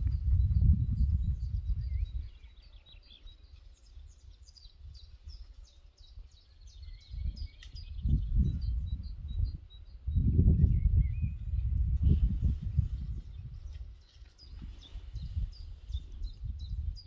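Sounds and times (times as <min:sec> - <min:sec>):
low rumbling noise: 0:00.0 - 0:02.2
songbirds chirping: 0:00.0 - 0:17.0.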